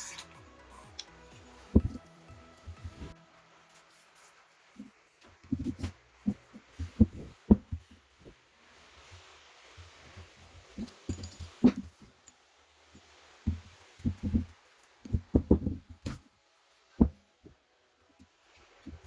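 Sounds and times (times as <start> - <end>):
dull knocks and thumps: 1.6 - 2.0, 5.4 - 8.0, 13.5 - 16.2.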